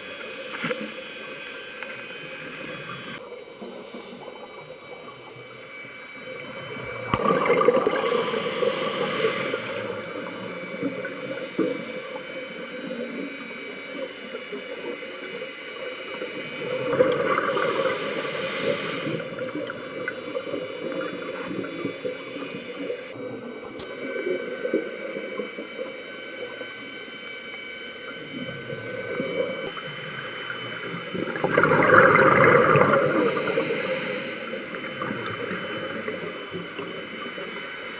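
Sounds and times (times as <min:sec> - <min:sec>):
faint steady hum: 0:00.0 - 0:37.9
underwater bubbles from regulator: 0:06.3 - 0:15.5, 0:16.1 - 0:26.7, 0:28.1 - 0:37.6.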